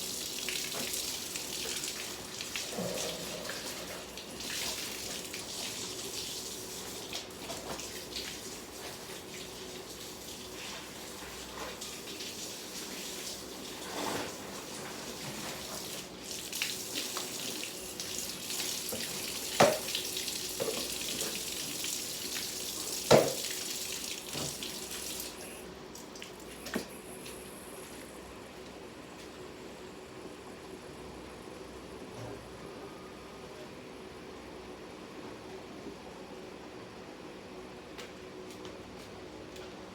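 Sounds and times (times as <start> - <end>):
tap water running into sink: 0.0 - 27.5.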